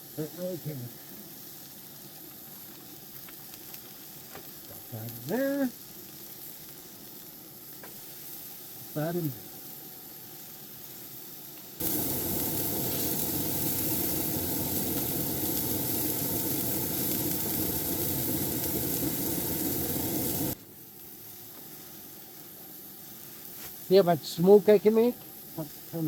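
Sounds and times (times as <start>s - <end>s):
patties sizzling in a pan: 0.0s - 26.0s.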